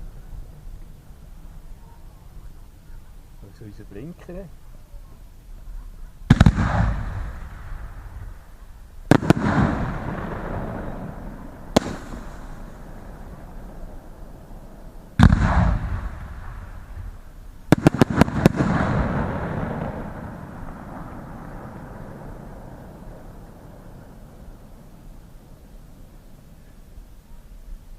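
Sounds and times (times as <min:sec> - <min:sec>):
fireworks cracks: 0:06.2 - 0:25.8
fireworks bangs: 0:06.2 - 0:26.6.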